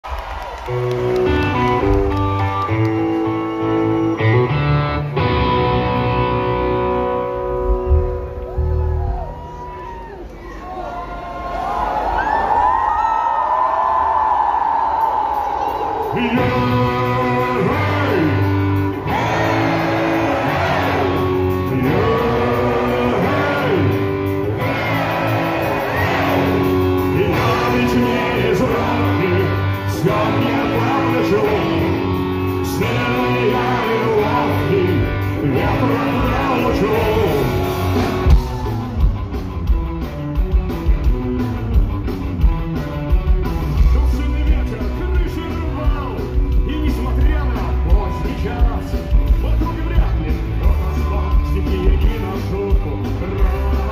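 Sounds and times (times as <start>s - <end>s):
live rock band playing: 0.5s - 10.0s, 15.0s - 53.9s
person singing: 16.1s - 37.8s, 46.6s - 53.9s.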